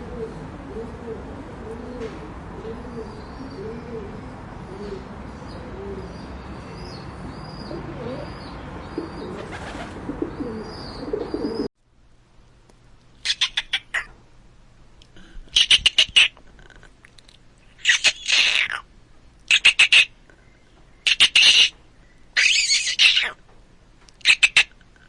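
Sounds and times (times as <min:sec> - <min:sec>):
pigeons cooing: 0:00.0 - 0:11.7
small birds chirping: 0:00.0 - 0:11.7
high-pitched animal calls: 0:22.4 - 0:23.4.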